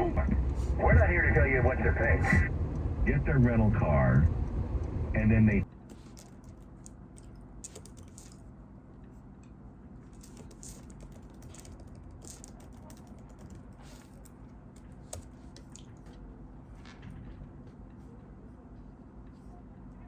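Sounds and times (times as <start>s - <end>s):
low steady hum: 0.0s - 20.0s
handling clicks and rustles: 5.7s - 8.4s, 10.0s - 16.2s.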